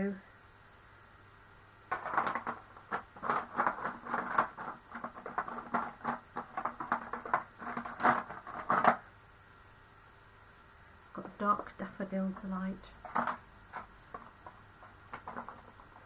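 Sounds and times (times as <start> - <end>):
plastic pens clicking and rattling: 1.9 - 9.0, 13.0 - 16.0.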